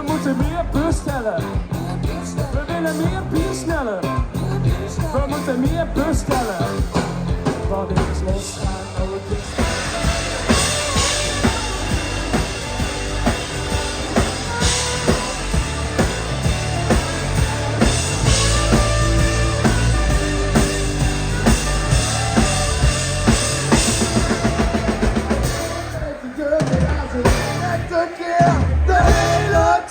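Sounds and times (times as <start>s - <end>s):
bass: 0.0s - 29.9s
drum kit beat: 0.0s - 29.9s
live band playing instrumental: 0.0s - 29.9s.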